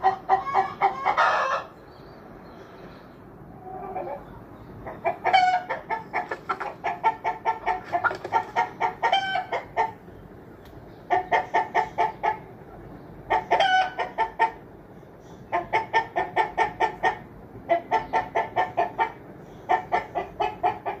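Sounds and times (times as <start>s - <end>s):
chicken clucking: 0.0s - 1.8s, 3.6s - 10.0s, 11.0s - 14.6s, 15.5s - 21.0s
chicken squawks: 3.6s - 9.9s.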